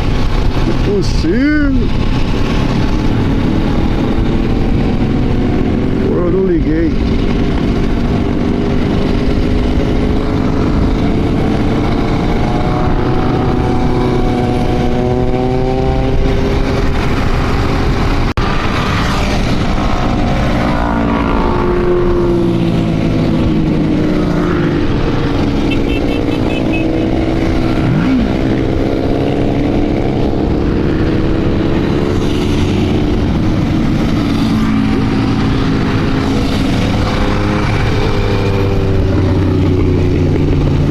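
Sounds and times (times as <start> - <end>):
motorcycle engines running: 0.0 - 40.9
wind and road noise: 0.0 - 40.9.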